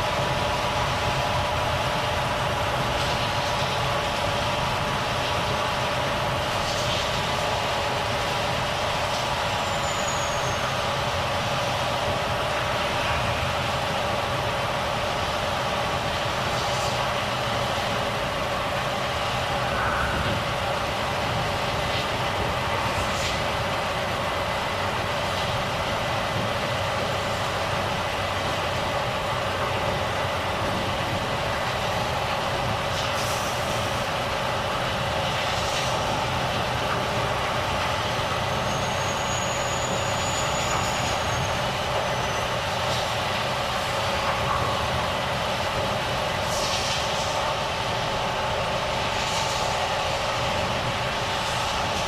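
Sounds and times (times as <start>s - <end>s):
faint high whistle: 9.6s - 10.7s, 38.6s - 41.6s.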